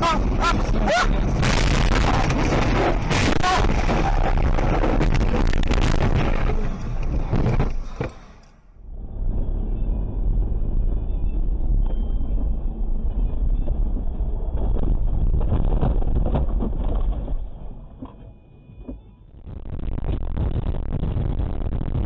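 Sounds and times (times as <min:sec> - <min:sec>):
car engine and tyre noise: 0:00.0 - 0:22.0
knocks and bumps: 0:13.8 - 0:18.3.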